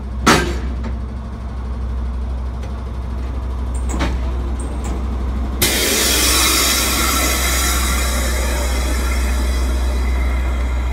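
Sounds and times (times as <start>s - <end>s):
diesel train engine drone: 0.0s - 10.9s
loud rushing noise: 5.6s - 10.9s
sharp metal clank: 5.6s - 10.9s.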